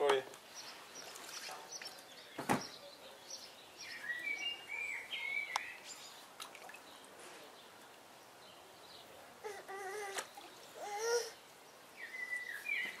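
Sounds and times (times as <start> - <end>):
short thump: 2.4 - 2.7
bird whistling and chirping: 12.0 - 13.0.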